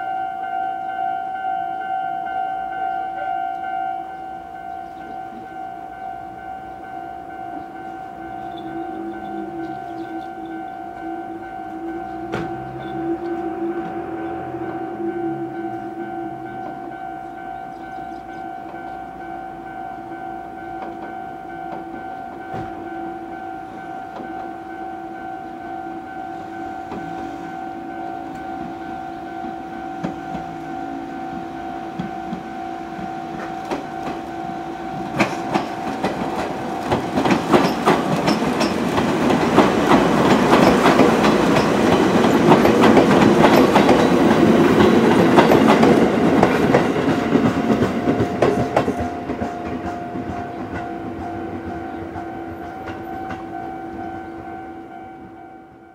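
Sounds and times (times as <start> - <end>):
train wheels clacking on rails: 4.6 - 54.4
steady droning tone: 7.9 - 18.4.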